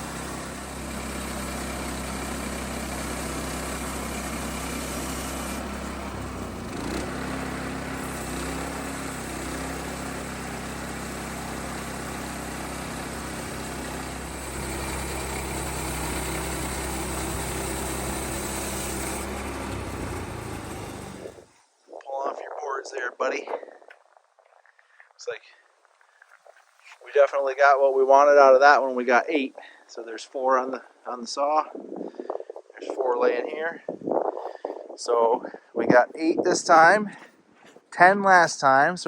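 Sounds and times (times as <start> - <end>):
bandsaw mill engine running: 0.0 - 21.5.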